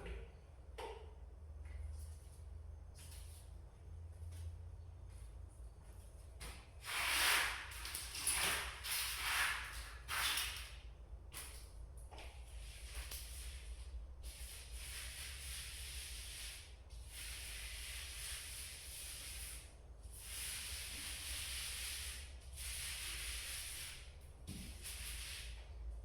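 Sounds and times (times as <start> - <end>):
hissing paint strokes on wall: 6.8 - 10.8, 12.5 - 25.8.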